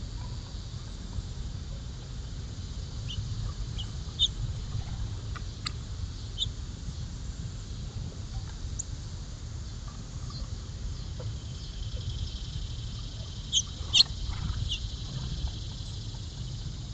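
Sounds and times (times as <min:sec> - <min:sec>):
steady low rumble: 0:00.0 - 0:16.9
sharp bird chirps: 0:11.4 - 0:16.6.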